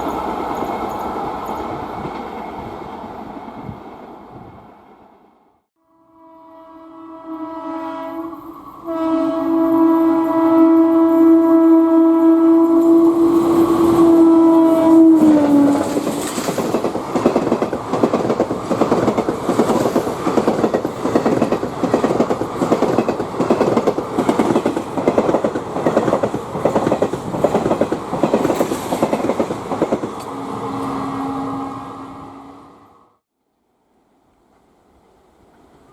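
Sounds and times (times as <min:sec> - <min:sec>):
locomotive horn blast: 0:05.8 - 0:16.0, 0:30.2 - 0:33.1
train wheels clickety-clack: 0:15.2 - 0:30.4.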